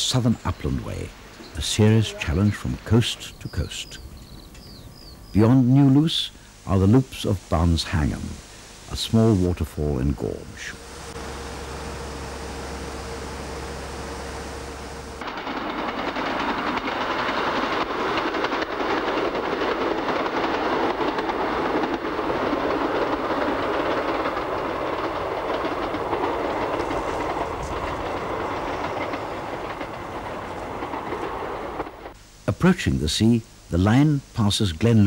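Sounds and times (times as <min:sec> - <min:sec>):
train wheels rumbling on rail: 0:10.2 - 0:32.2.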